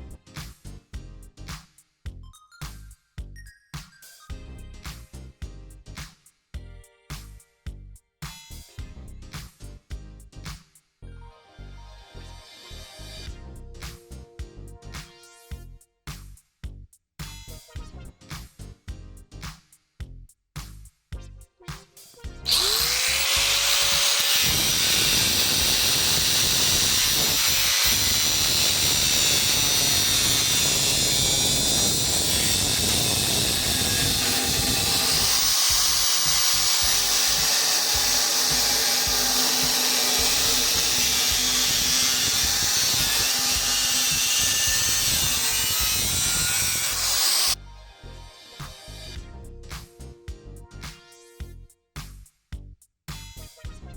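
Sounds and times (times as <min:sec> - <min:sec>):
power tool cutting steel: 0:22.5 - 0:47.6, 0:48.2 - 0:49.2.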